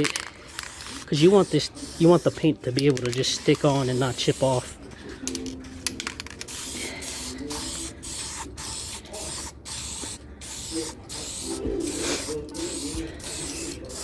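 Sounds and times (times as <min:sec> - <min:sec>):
aerosol can spraying spurts: 0:06.4 - 0:14.0.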